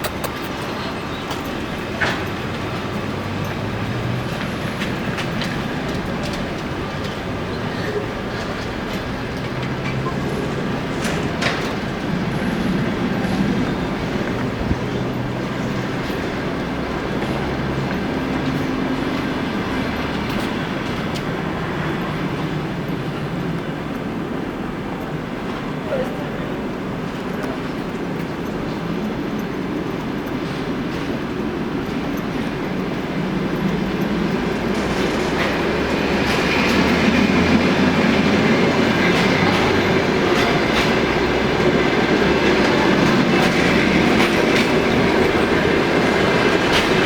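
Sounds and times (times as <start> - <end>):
train rumbling: 0.0 - 47.0
wheels clicking on rails: 0.0 - 47.0.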